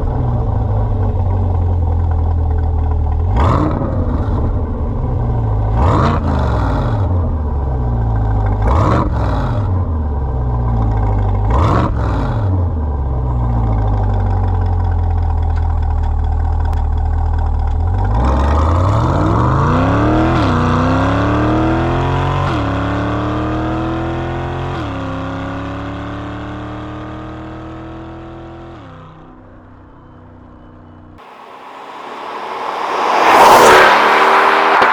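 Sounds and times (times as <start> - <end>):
car accelerating hard: 5.6 - 7.4, 31.2 - 34.9
car engine revving: 31.2 - 34.9.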